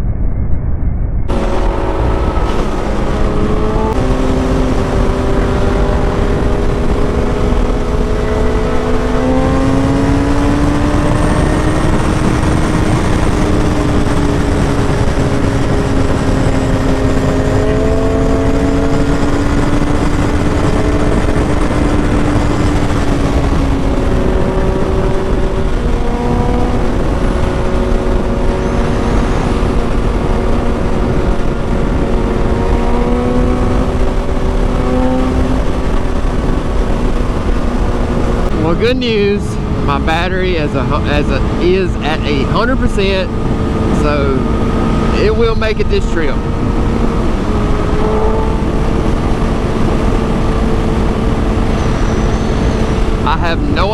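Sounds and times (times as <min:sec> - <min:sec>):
wind rushing: 0:00.0 - 0:53.9
motorcycle engine cruising: 0:01.3 - 0:53.9.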